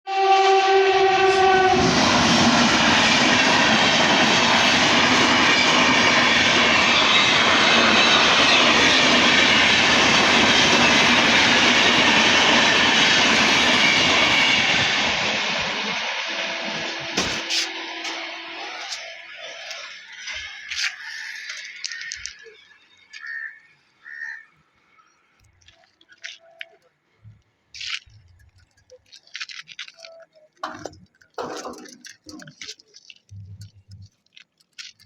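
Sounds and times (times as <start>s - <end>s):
train horn: 0.1s - 2.4s, 11.3s - 15.2s
high-speed train rushing past: 0.1s - 21.5s.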